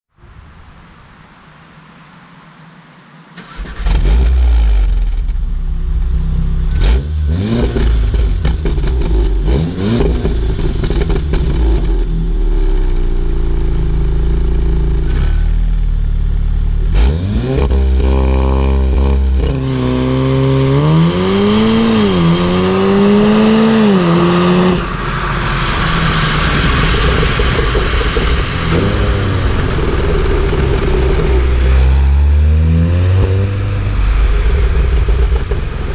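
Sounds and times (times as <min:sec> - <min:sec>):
car engine revving and idling: 0:01.5 - 0:35.9.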